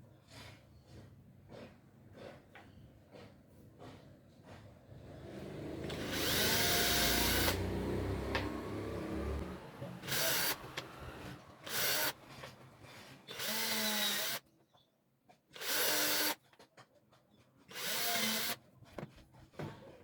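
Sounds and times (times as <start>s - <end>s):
power drill bursts: 5.0s - 14.4s, 15.6s - 16.4s, 17.7s - 18.6s.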